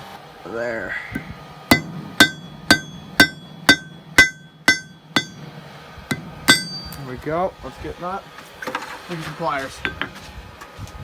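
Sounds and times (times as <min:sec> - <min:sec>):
hammer striking steel on anvil: 0:01.2 - 0:07.2.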